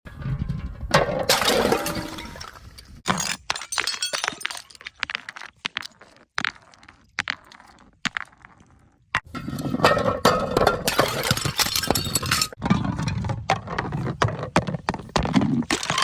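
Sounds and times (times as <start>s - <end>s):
glass bottle smashing: 1.3s - 2.5s, 3.1s - 4.8s, 9.9s - 12.6s
glass pieces clinking: 3.1s - 4.9s, 10.3s - 12.6s.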